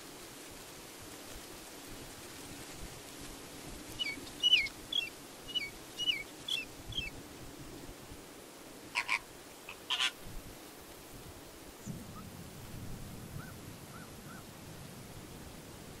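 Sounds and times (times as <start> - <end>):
background hiss: 0.0 - 16.0
bird chirping: 4.0 - 7.1.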